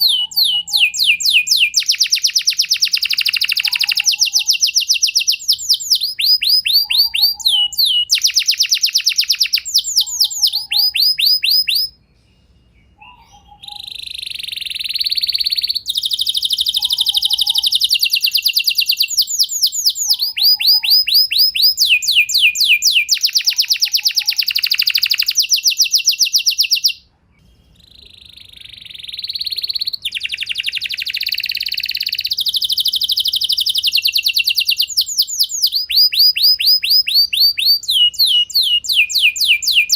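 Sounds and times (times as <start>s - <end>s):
canary singing trilled song: 0.0s - 39.9s.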